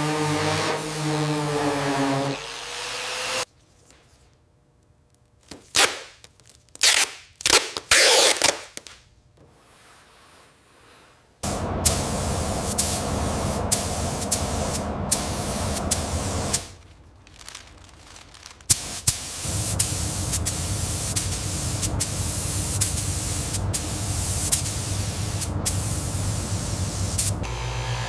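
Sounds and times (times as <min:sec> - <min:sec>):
nozzle spraying hiss: 0:11.4 - 0:16.8, 0:18.7 - 0:27.4
low hum: 0:11.4 - 0:18.0.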